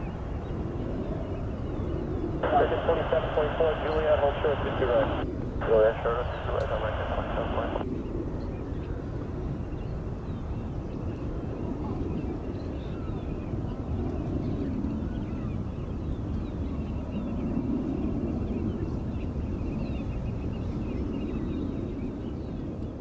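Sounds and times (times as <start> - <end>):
distant jet aircraft rumble: 2.4 - 7.8.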